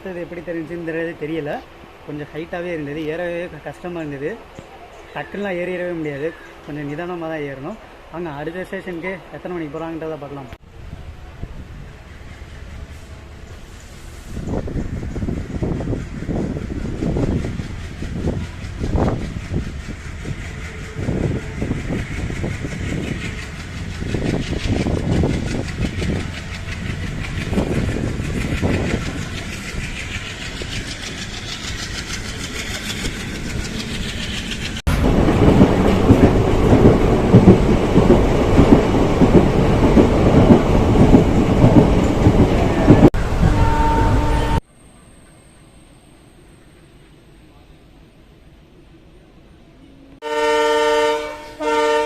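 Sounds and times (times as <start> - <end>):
train rattle and roar: 0.0 - 52.0
train wheels clattering over rail joints: 14.9 - 43.1.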